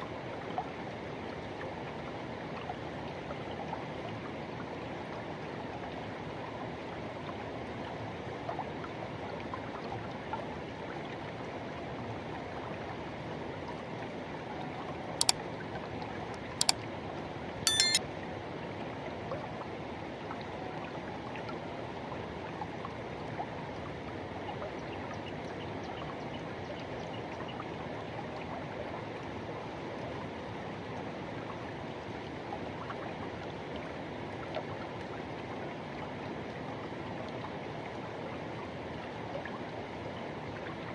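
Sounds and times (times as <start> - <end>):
sharp clicks and rattle: 17.7 - 18.0.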